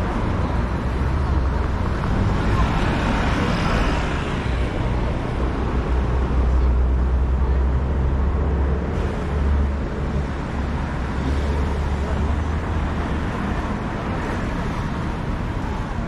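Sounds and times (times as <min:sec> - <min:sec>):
crowd noise: 0:00.0 - 0:16.0
traffic: 0:00.0 - 0:16.0
vehicle engine rumble: 0:00.0 - 0:16.0.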